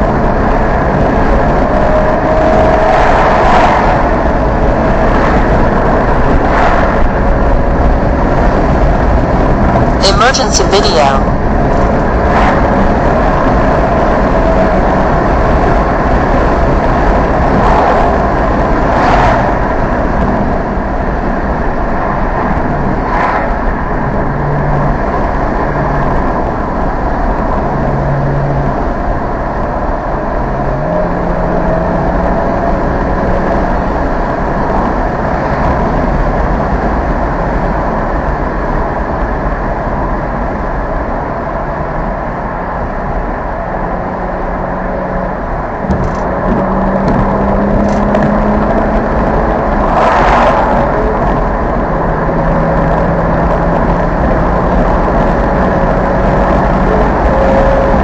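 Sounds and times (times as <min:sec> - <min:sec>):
car engine while driving: 0:00.0 - 0:58.0.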